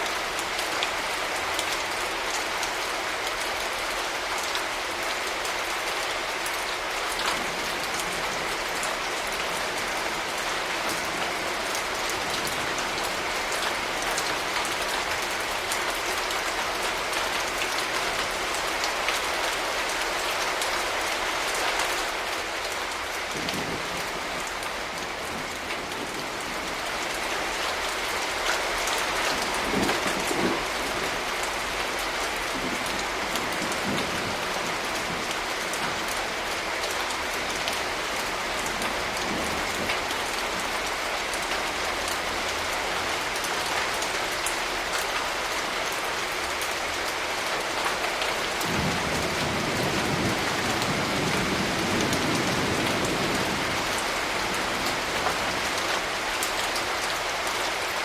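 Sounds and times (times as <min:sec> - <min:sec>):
heavy rain drops ticking: 0:00.0 - 0:58.0
distant thunder rumble: 0:32.4 - 0:36.0.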